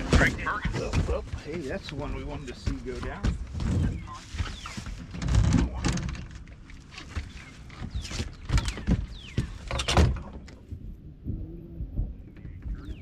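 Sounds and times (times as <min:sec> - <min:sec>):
knocks and thumps: 0:02.4 - 0:06.4, 0:07.1 - 0:10.8.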